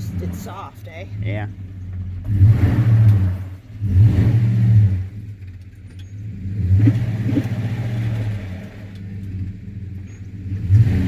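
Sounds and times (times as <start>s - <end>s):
pickup truck engine revving: 0.0s - 11.0s.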